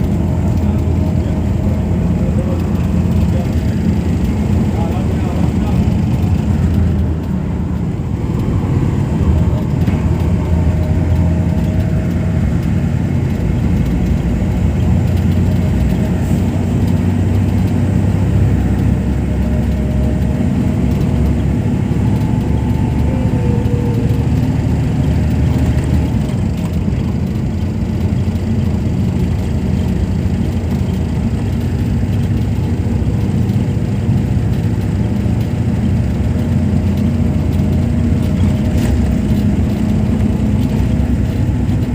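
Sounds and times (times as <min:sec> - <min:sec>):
loud low rumble: 0:00.0 - 0:27.7.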